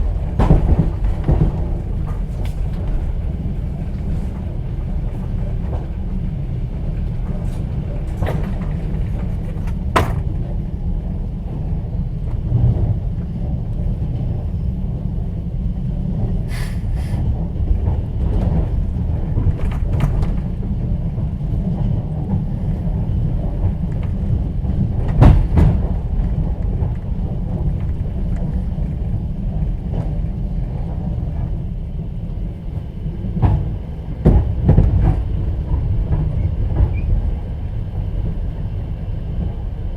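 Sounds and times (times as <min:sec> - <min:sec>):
train wheels rumbling: 0:00.0 - 0:39.9
sharp knocks and clicks: 0:08.1 - 0:10.4.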